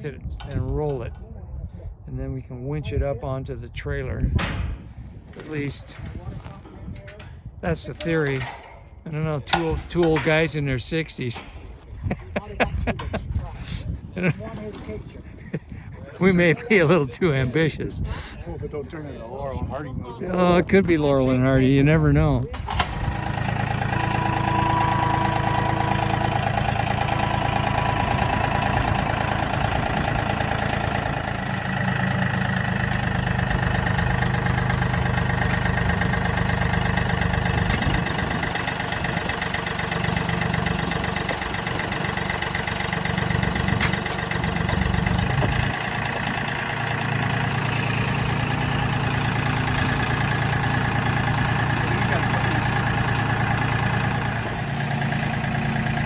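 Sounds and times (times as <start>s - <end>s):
engine idling: 20.8s - 56.0s.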